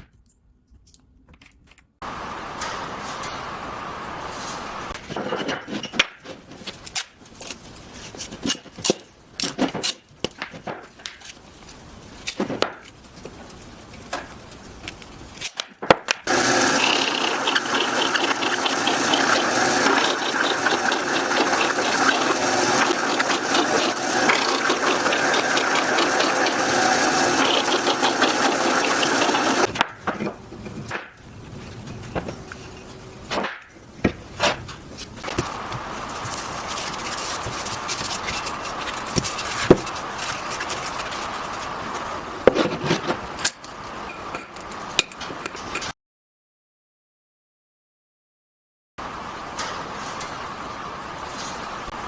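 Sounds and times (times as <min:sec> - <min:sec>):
power tool running: 0:02.0 - 0:05.0, 0:16.3 - 0:29.7, 0:35.3 - 0:41.7.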